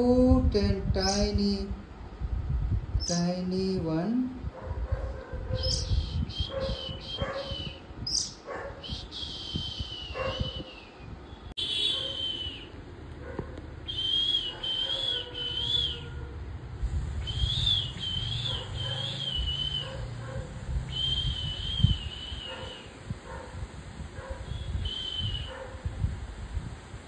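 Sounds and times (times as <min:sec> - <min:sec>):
low steady hum: 0:00.0 - 0:05.9
bird whistled calls: 0:05.6 - 0:12.8, 0:13.8 - 0:16.2, 0:17.2 - 0:20.2, 0:20.9 - 0:23.0, 0:24.5 - 0:25.6.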